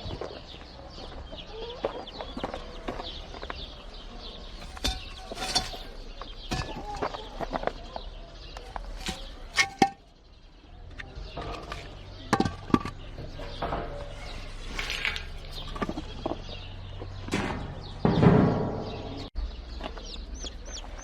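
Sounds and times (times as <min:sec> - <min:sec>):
chickens moving with clicks and knocks: 0:00.0 - 0:21.0
chicken calls: 0:00.2 - 0:03.9
loud bump: 0:17.3 - 0:19.3.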